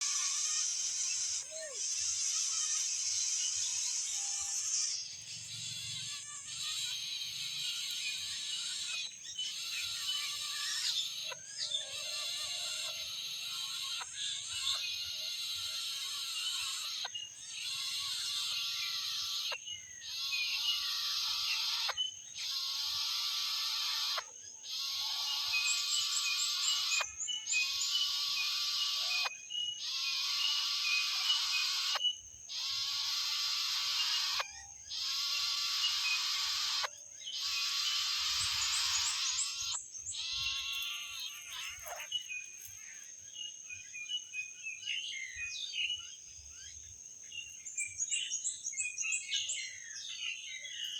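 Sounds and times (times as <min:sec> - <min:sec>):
animal chirps and calls: 0:00.0 - 0:43.0
cicadas buzzing: 0:00.0 - 0:50.9
high insect drone: 0:00.0 - 0:50.9.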